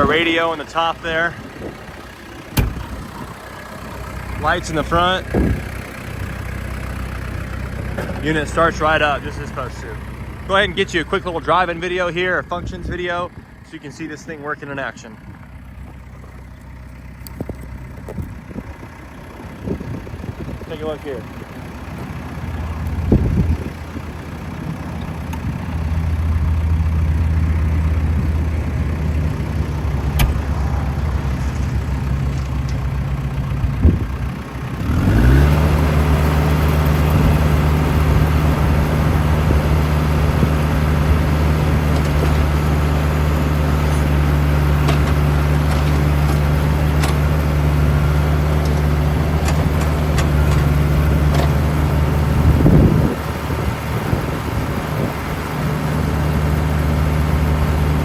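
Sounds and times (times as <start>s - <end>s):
engine knocks: 0.0s - 58.0s
tractor diesel engine revving: 0.0s - 58.0s.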